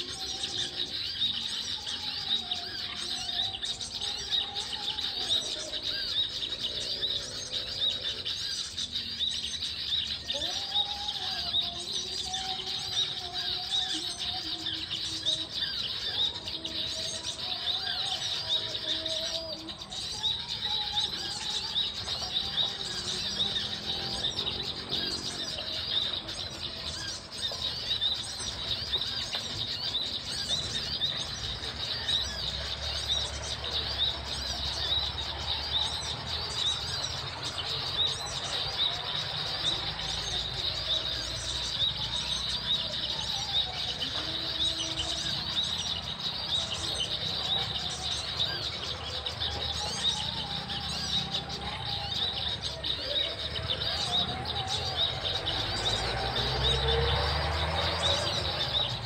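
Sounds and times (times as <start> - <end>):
small birds chirping rapidly: 0.0 - 59.0.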